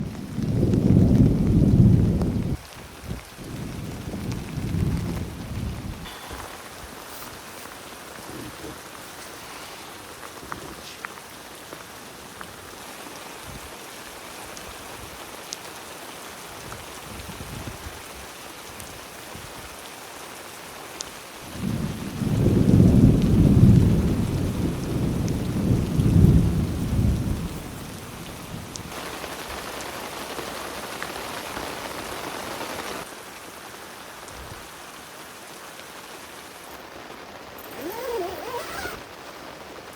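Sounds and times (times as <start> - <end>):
thunder rumble: 0.0 - 7.0, 21.5 - 28.9
rain drop ticks: 0.0 - 9.1, 14.4 - 14.8, 15.4 - 15.8, 20.9 - 31.2
steady rain falling: 0.0 - 39.9.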